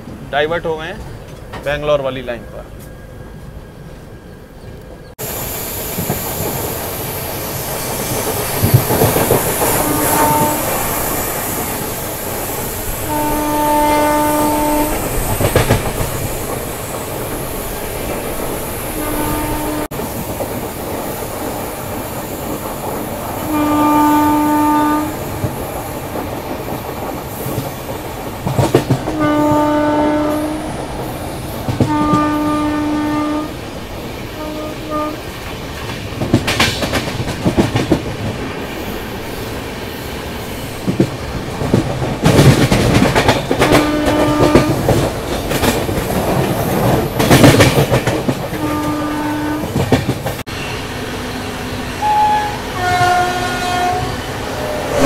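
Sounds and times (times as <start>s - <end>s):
train wheel clatter: 2.8s - 32.8s, 34.0s - 38.9s, 40.5s - 50.6s
train horn: 9.6s - 11.0s, 13.0s - 15.1s, 19.0s - 20.0s, 23.4s - 25.3s, 29.1s - 30.7s, 31.8s - 33.6s, 34.3s - 35.2s, 43.6s - 44.9s, 48.5s - 49.9s, 50.5s - 55.0s.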